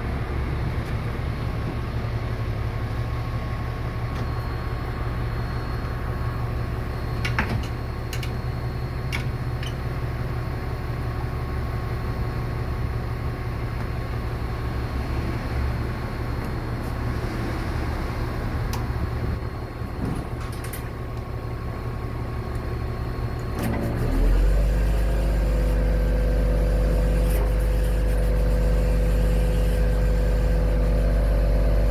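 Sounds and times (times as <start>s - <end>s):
truck diesel engine running: 0.0s - 31.9s
thin steady whine: 2.3s - 20.1s, 24.6s - 31.9s.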